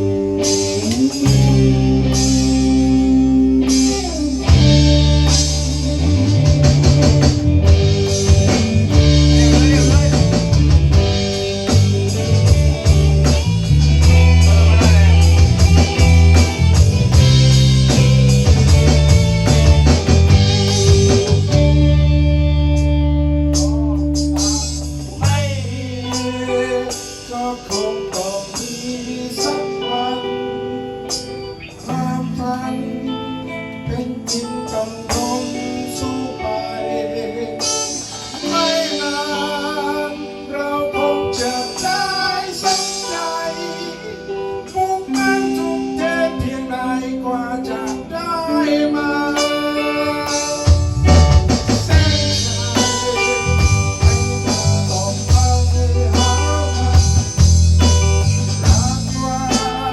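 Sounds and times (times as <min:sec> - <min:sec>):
deep bass line: 0:00.0 - 0:29.4, 0:50.3 - 0:59.9
plucked guitar: 0:00.0 - 0:59.9.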